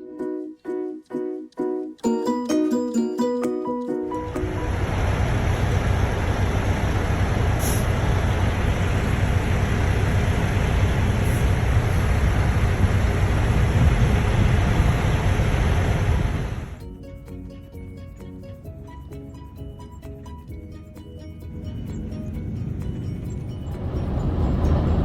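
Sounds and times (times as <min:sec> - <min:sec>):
car road and engine noise: 0:04.0 - 0:25.0.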